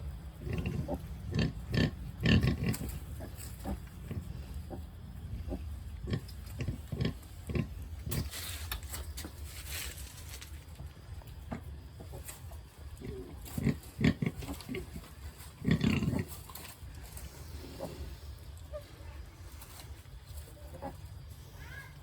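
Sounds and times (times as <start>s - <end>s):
soft hissing noise: 0.0s - 22.0s
pigs grunting: 0.4s - 8.3s, 12.9s - 19.0s.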